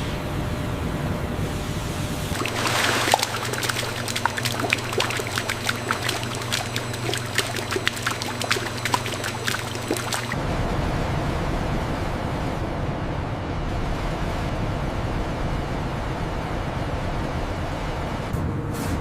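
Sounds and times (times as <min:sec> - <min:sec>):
steady low hum: 0:02.0 - 0:10.4
liquid pouring and splashing: 0:02.3 - 0:10.4
small sharp drips and pops: 0:02.3 - 0:10.4.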